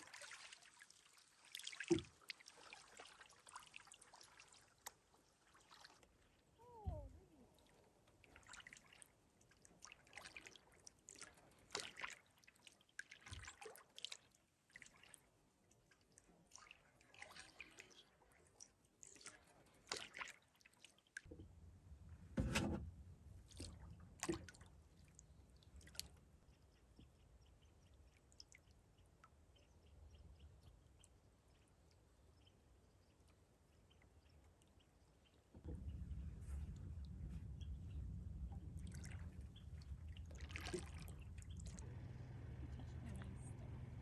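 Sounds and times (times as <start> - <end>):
water drips and splashes: 0.0 - 21.4, 23.4 - 32.5, 33.7 - 44.0
low steady rumble: 6.6 - 8.2, 21.3 - 28.1, 35.6 - 44.0.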